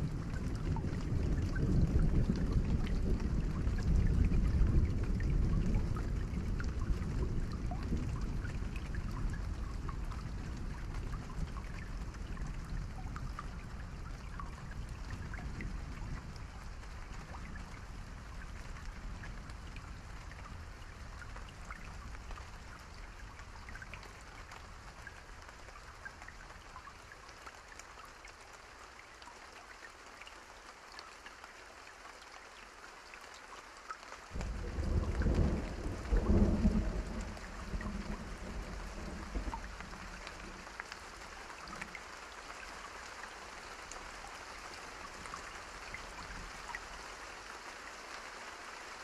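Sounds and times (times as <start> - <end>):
raindrop ticks: 0.0 - 47.7
steady rain: 0.0 - 49.0
low rumble: 34.4 - 40.4
thunder rolling: 34.4 - 40.6.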